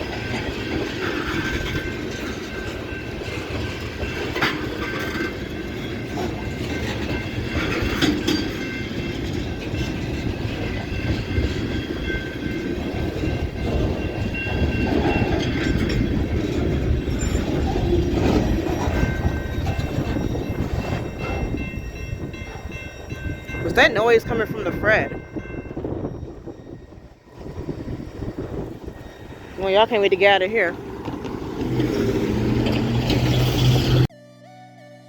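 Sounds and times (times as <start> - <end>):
wheels clicking over rail joints: 0.0 - 24.8, 28.4 - 34.1
freight train wheels rumbling: 0.0 - 34.1
high wheel squealing: 9.8 - 23.8, 27.3 - 34.1.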